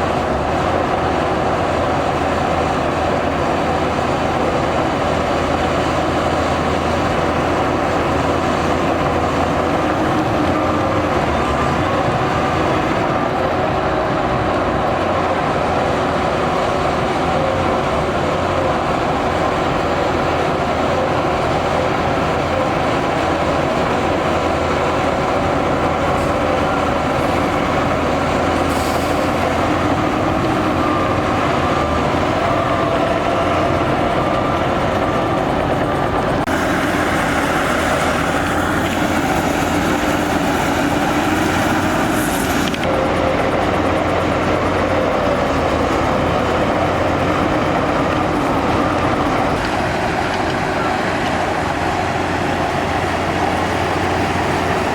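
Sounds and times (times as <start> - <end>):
diesel machinery running: 0.0 - 54.9
harsh bright machine noise: 35.1 - 51.8.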